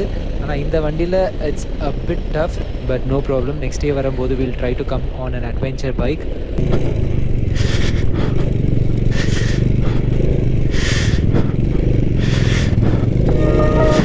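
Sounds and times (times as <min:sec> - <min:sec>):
motorcycle engine running: 0:06.3 - 0:14.0.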